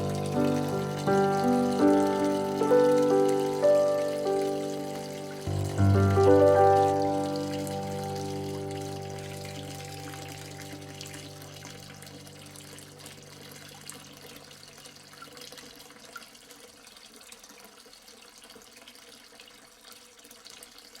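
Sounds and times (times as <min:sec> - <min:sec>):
background music notes: 0:00.0 - 0:12.8
water trickling with drips: 0:00.0 - 0:21.0.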